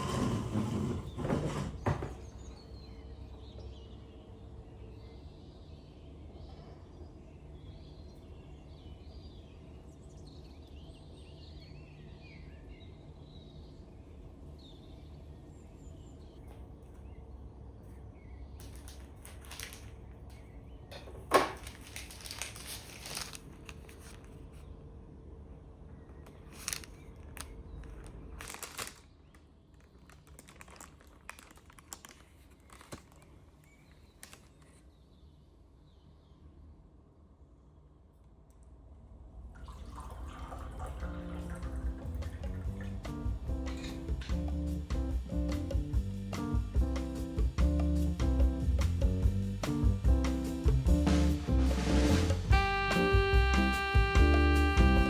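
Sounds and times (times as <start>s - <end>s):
low steady hum: 0.0s - 55.0s
small objects clicking and crinkling: 18.6s - 24.4s, 26.3s - 34.8s
low background rumble: 39.0s - 52.8s.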